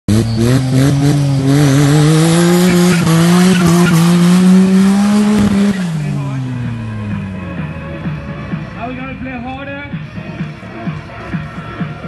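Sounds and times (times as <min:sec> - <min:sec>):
car engine at high revs: 0:00.1 - 0:08.5
tyre squeal: 0:02.5 - 0:04.2.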